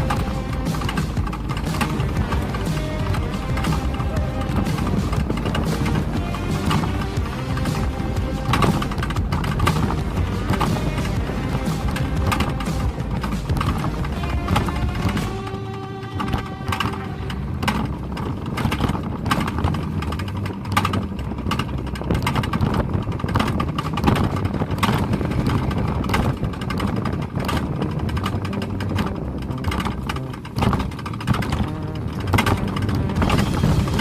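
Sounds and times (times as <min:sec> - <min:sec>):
rapid clattering and knocking: 0:00.0 - 0:34.0
toboggan sled rumbling on track: 0:00.0 - 0:34.0.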